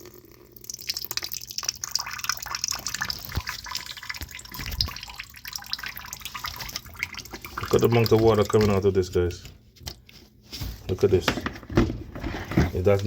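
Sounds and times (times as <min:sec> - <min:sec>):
water trickling and splashing: 0:00.0 - 0:09.2.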